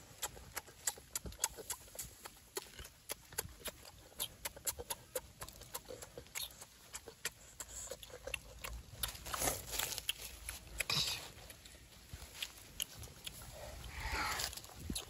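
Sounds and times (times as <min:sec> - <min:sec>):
wet chewing smacks: 0:00.0 - 0:15.0.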